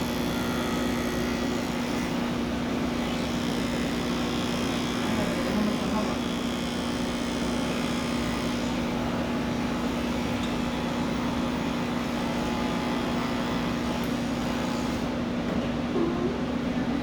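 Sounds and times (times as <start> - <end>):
electric clippers buzzing: 0.0 - 15.1.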